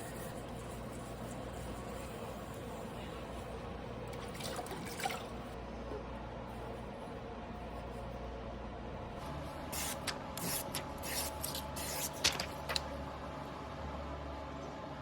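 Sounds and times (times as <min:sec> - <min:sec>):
steady low hum: 0:00.0 - 0:15.0
knife blade stroked on whetstone: 0:09.8 - 0:12.3.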